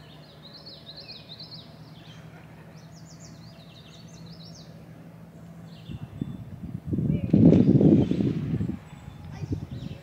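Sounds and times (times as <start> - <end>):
songbird singing high chirps: 0.0 - 2.2, 2.8 - 4.8, 5.6 - 6.7, 7.6 - 10.0.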